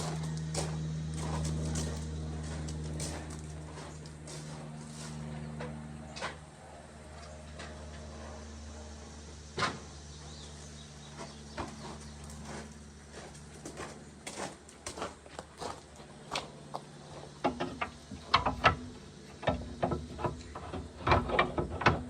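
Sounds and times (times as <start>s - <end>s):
steady low hum: 0.0s - 22.0s
hand tools clicking and knocking: 17.4s - 22.0s.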